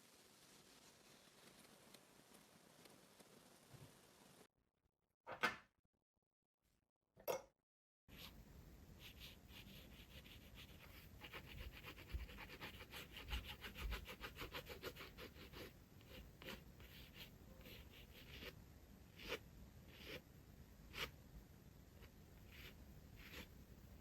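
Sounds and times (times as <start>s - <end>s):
glass pen scratching on paper: 22.5s - 23.5s.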